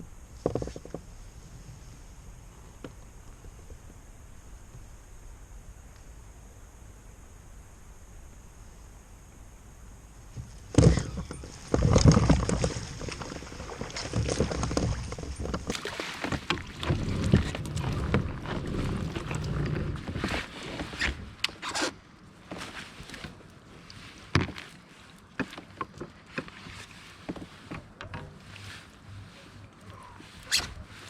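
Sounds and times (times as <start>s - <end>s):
gear knocking on kayak: 10.4s - 21.2s
low rumble: 16.6s - 20.4s.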